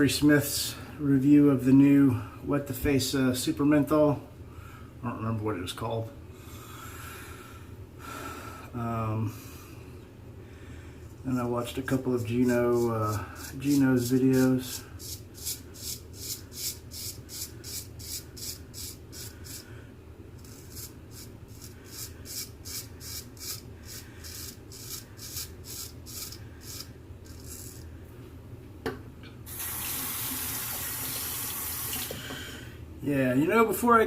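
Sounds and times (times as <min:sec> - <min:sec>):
straight razor scraping stubble: 0:20.4 - 0:27.9
tap water running: 0:29.5 - 0:32.4.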